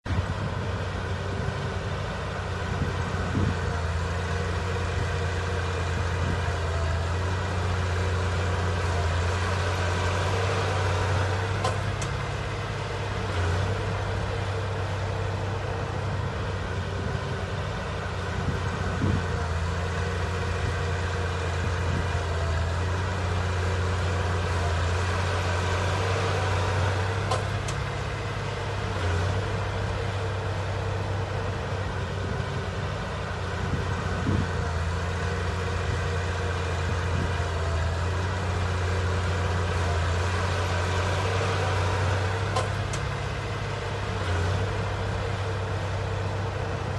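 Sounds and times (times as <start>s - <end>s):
heavy diesel engine droning: 0.0s - 46.9s.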